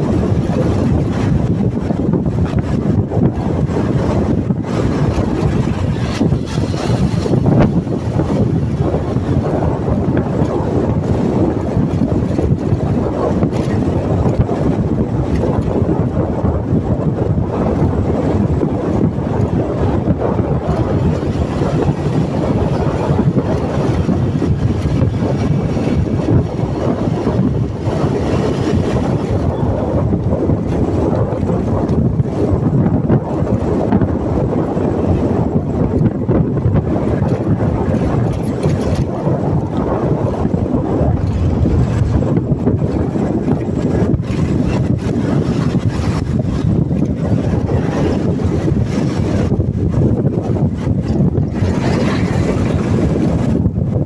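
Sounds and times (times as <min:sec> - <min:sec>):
road and engine noise: 0:00.0 - 0:15.9, 0:16.8 - 0:34.1
wind rumble on microphone: 0:00.0 - 0:54.0.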